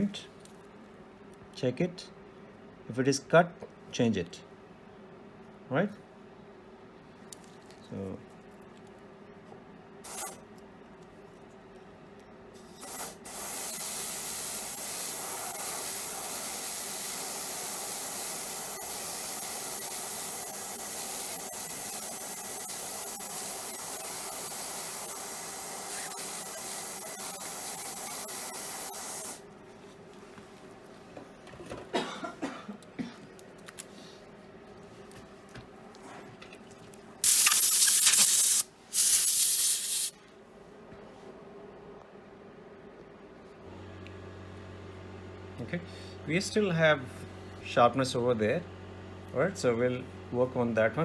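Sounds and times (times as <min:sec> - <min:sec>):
dental drill whining: 0:12.7 - 0:29.4, 0:37.2 - 0:40.1.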